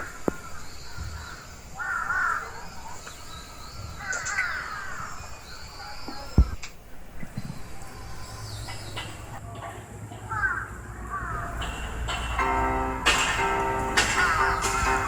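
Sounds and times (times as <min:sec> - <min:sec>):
birds cawing: 0:00.0 - 0:06.4, 0:10.2 - 0:15.0.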